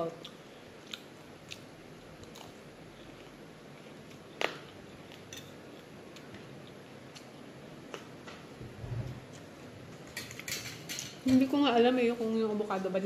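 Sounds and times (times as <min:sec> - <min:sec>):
person chewing salad: 0:00.2 - 0:08.2.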